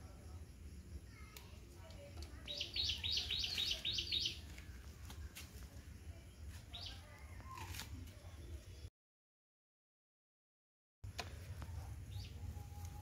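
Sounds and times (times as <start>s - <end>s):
bird chirping: 2.5s - 4.9s, 12.1s - 13.0s.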